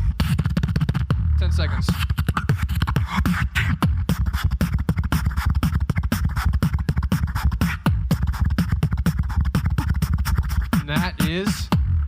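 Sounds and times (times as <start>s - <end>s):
beatboxing: 0.0s - 12.0s.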